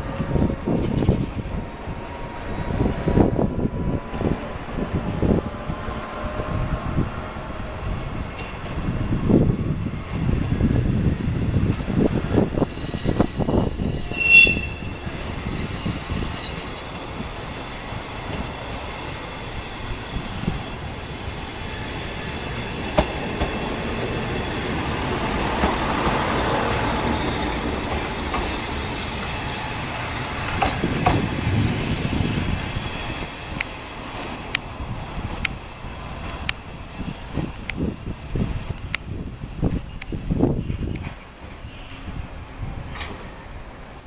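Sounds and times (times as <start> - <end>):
diesel railcar engine rumble: 0.0 - 44.0
high wheel squeal: 12.4 - 16.9, 35.6 - 42.4.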